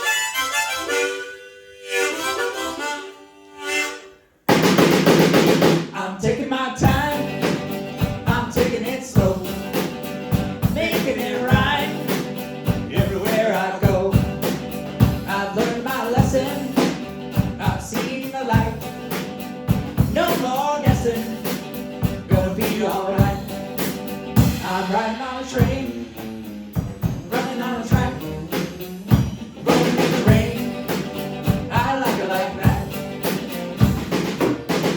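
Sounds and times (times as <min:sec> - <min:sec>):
lone melody line: 0:00.0 - 0:04.3, 0:19.7 - 0:34.2
band playing with drum kit: 0:04.5 - 0:34.9.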